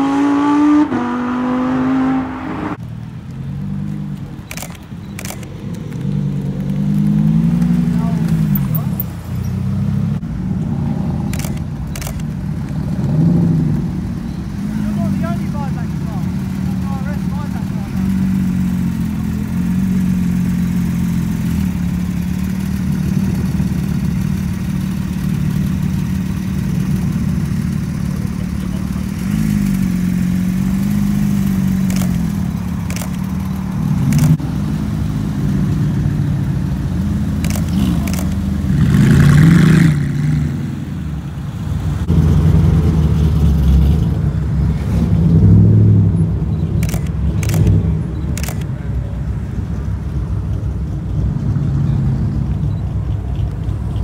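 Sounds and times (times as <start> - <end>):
sports car engines revving: 0.0 - 54.0
camera shutter clicks: 4.4 - 5.8, 11.3 - 12.3, 31.8 - 33.3, 34.0 - 34.4, 37.4 - 38.4, 46.8 - 47.8, 48.4 - 48.7.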